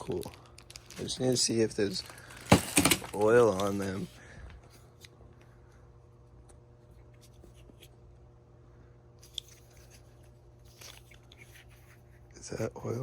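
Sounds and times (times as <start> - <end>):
plastic parts clicking and rustling: 0.0 - 4.0
steady low hum: 0.0 - 13.0.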